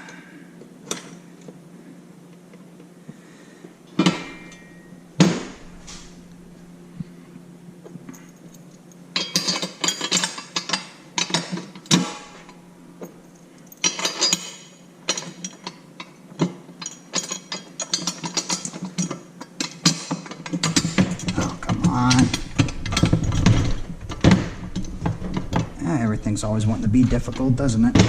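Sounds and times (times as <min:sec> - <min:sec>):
faint low hum: 0:00.0 - 0:16.2, 0:20.4 - 0:28.0
metal parts clinking and rattling: 0:04.0 - 0:04.9, 0:08.1 - 0:28.0.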